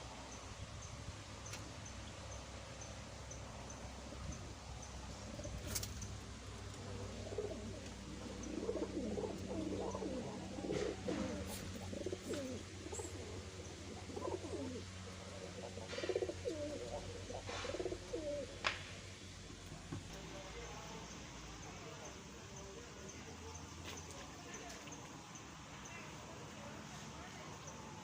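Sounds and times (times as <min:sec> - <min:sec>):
steady low hum: 0:00.0 - 0:28.0
doves cooing: 0:02.4 - 0:20.8.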